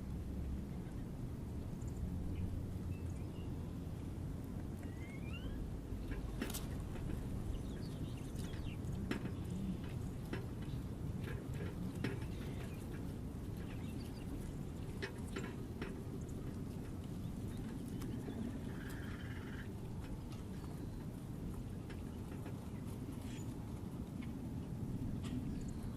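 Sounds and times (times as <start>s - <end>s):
low outdoor rumble: 0.0s - 25.9s
bird call: 4.8s - 5.6s
small birds chirping: 7.4s - 9.9s.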